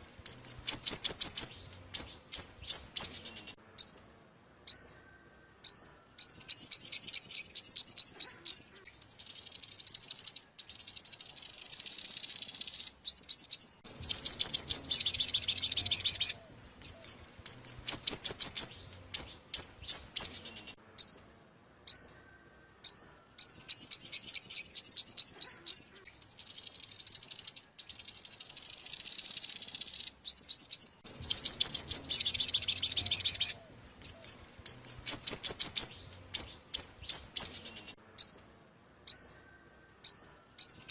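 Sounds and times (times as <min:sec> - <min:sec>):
recorded sunbird song: 0:00.0 - 0:40.9.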